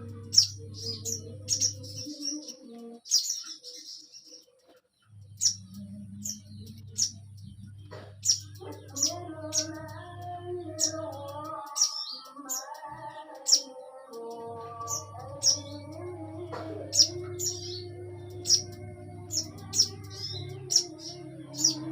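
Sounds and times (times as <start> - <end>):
steady low tone: 5.1 - 8.6, 14.4 - 21.8.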